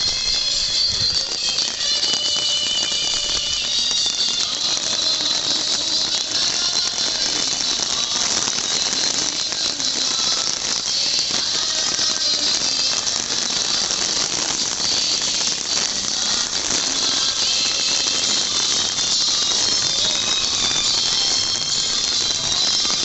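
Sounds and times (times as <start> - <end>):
heavy rain on wet paving: 0.0 - 23.0.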